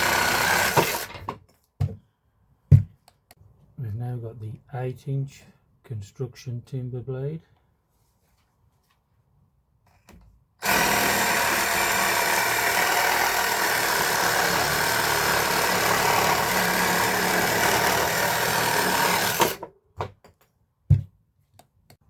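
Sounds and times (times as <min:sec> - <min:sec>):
reciprocating saw cutting timber: 0:00.0 - 0:01.2, 0:10.6 - 0:19.6.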